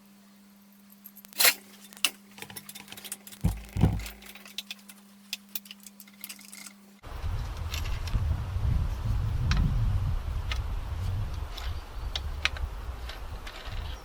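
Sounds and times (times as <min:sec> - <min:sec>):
steady low hum: 0:00.0 - 0:14.0
heavy thumps: 0:03.4 - 0:04.3
low rumbling noise: 0:07.0 - 0:14.0.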